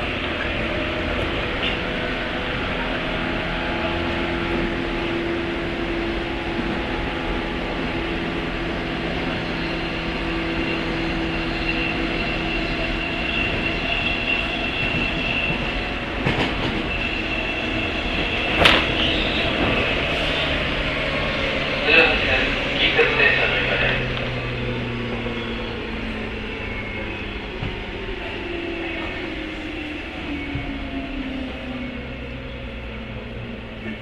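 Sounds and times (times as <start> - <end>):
sharp knocks: 18.5 - 20.1.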